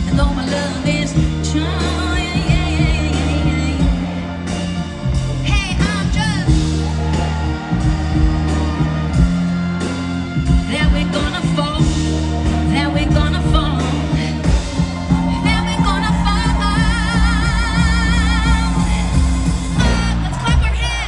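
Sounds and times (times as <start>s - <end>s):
live pop band playing: 0.0s - 21.0s.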